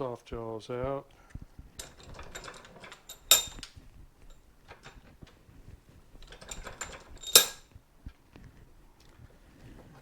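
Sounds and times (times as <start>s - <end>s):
ringing metallic clank: 1.8s - 3.7s, 6.3s - 7.6s
metal tools clinking and rattling: 1.8s - 5.3s, 6.2s - 7.7s.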